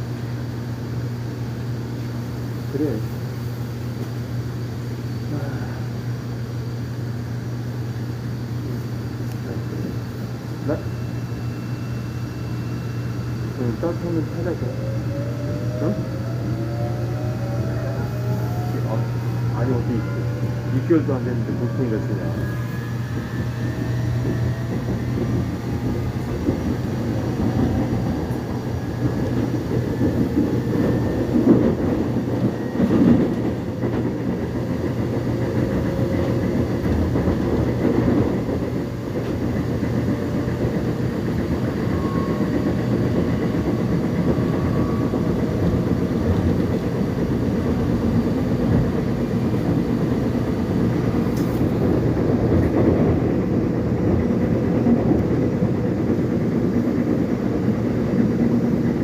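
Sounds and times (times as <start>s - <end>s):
train wheels rumbling on track: 0.0s - 59.0s
faint high whining tones: 9.0s - 38.2s, 38.8s - 47.6s.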